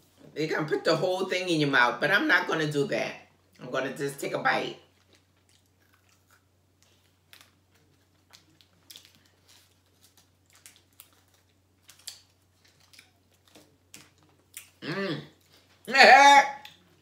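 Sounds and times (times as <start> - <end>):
wrapper crinkling: 5.0 - 14.8.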